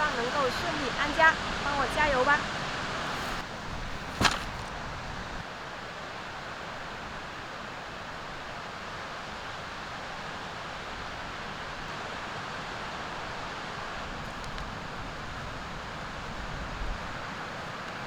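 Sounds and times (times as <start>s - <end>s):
sea surf: 0.0s - 3.6s
steady wind: 0.0s - 18.0s.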